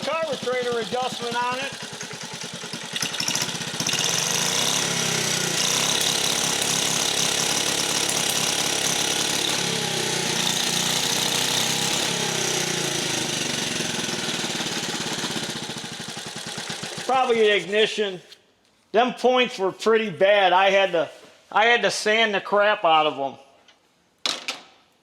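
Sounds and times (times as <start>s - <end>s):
gasoline engine running fast: 0.0s - 17.4s.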